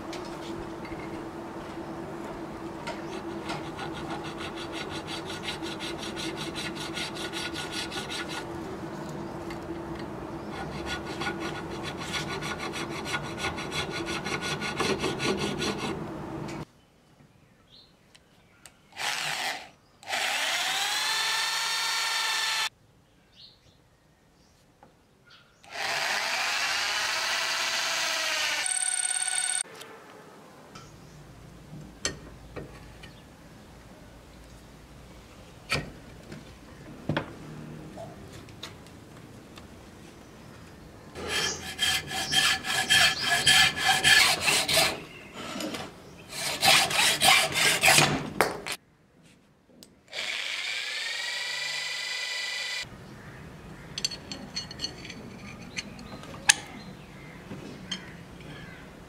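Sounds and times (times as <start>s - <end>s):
hand file rasping on metal: 3.0s - 8.5s, 10.5s - 16.0s, 41.2s - 45.0s, 46.3s - 48.1s
electric drill boring into wood: 19.0s - 22.7s, 25.7s - 29.6s, 50.1s - 52.8s.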